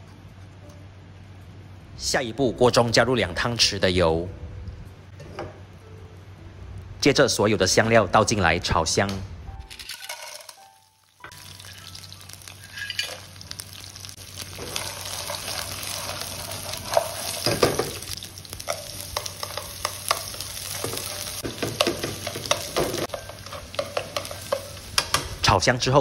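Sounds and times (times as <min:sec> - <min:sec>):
spices sizzling in hot oil: 0:09.9 - 0:25.6.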